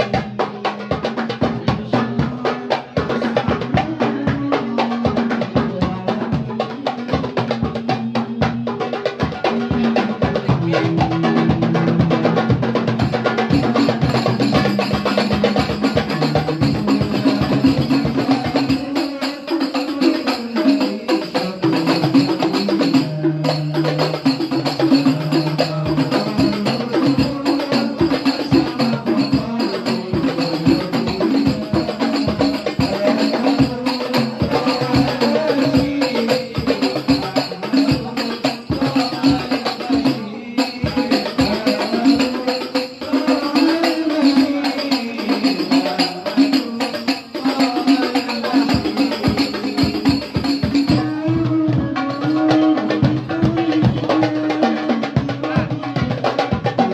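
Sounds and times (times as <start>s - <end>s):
goblet drums fast rhythm: 0.0s - 56.9s
jingling tambourine: 12.7s - 56.8s.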